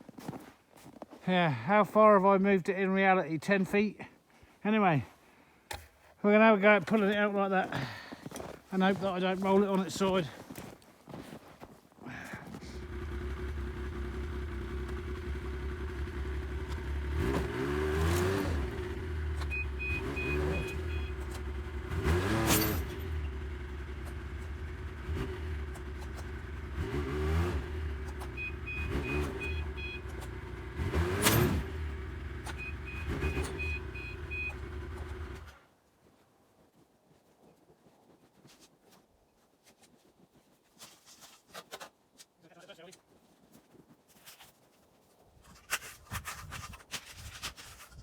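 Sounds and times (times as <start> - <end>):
snowmobile engine revving: 12.6 - 35.5
beeping: 19.4 - 23.5, 27.9 - 30.2, 32.3 - 35.3.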